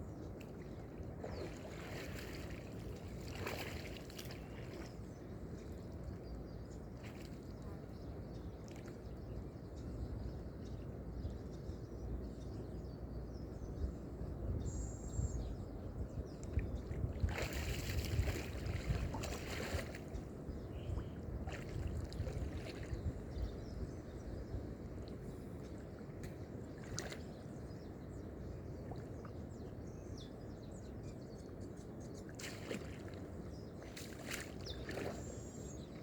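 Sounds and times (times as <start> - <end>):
water lapping: 0.3 - 9.3, 16.4 - 24.0, 25.0 - 30.0, 32.2 - 36.0
water splashing: 1.2 - 5.0, 17.2 - 20.1, 32.4 - 35.6.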